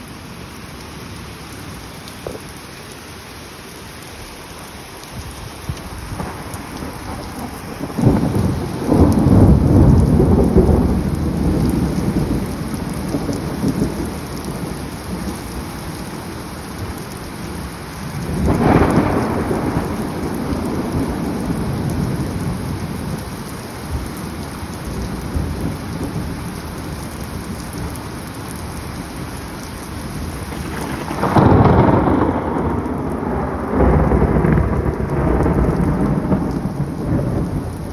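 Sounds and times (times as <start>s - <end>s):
steady rain: 0.0s - 37.9s
thunder rumbling: 4.2s - 37.9s
sharp thunder crack: 5.8s - 14.1s, 18.2s - 22.0s, 30.5s - 37.9s.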